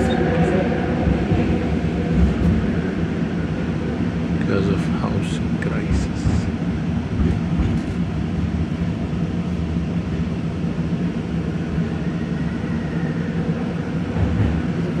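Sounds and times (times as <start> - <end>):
train hum and rumble: 0.0 - 15.0
train pulling in: 0.0 - 15.0.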